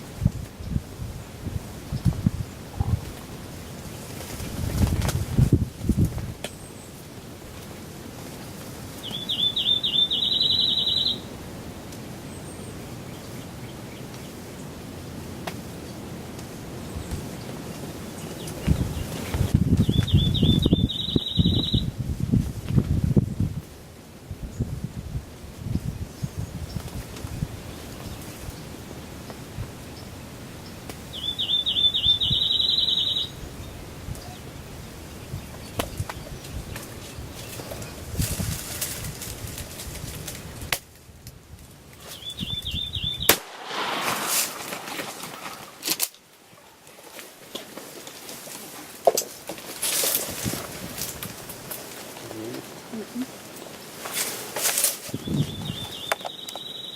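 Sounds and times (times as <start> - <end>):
songbird trilling song: 9.0 - 11.3, 18.1 - 21.9, 25.8 - 38.0, 42.0 - 43.4, 55.1 - 56.9.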